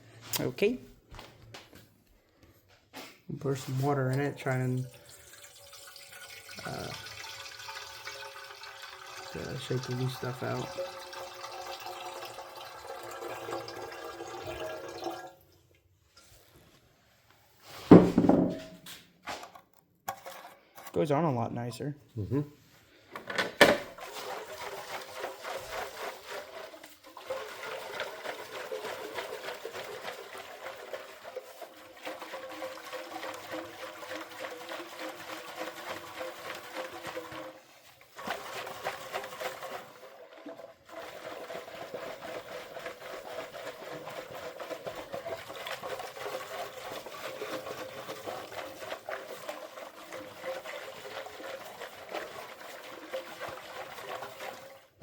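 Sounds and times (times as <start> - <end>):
water sloshing in metal tank: 3.4 - 15.4, 23.5 - 55.0.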